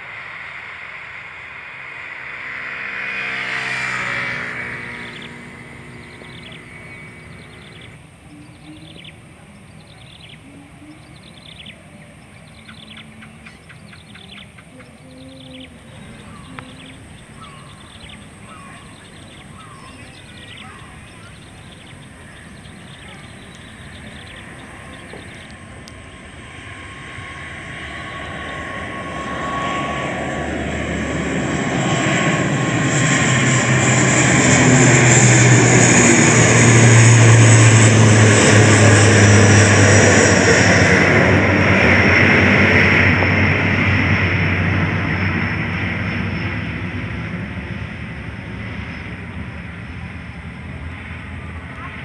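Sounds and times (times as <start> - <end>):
aircraft passing overhead: 0.0 - 52.0.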